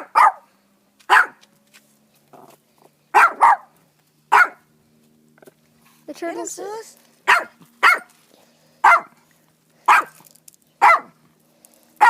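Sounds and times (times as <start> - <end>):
dog barking: 0.0 - 0.5, 1.1 - 1.4, 3.1 - 3.7, 4.3 - 4.6, 7.3 - 8.1, 8.8 - 9.2, 9.9 - 10.2, 10.8 - 11.2.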